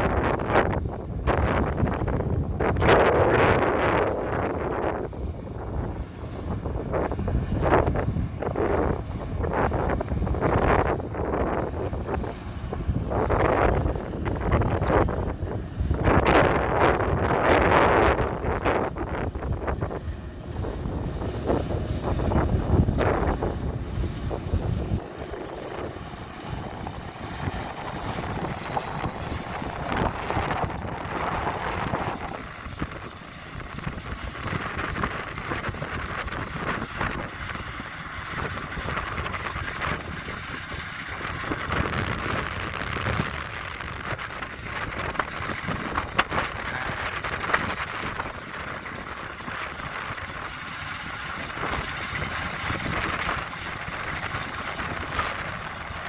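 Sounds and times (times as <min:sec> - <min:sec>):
combine harvester running: 0:00.0 - 0:56.0
wind buffeting microphone: 0:00.0 - 0:56.0.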